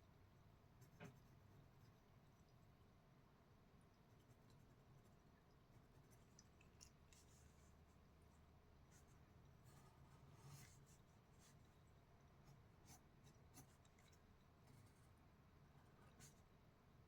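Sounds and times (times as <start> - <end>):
low steady hum: 0.0 - 17.0
pencil scratching on paper: 12.4 - 13.8.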